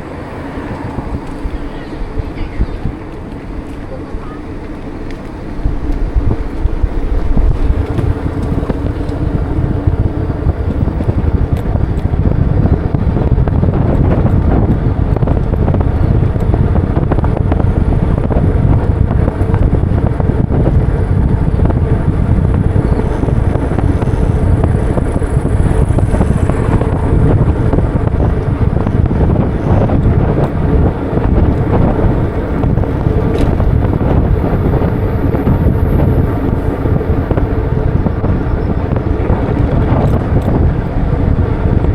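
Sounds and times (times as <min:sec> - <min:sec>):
street traffic: 0:00.0 - 0:41.9
wind rushing over microphone: 0:00.0 - 0:41.9.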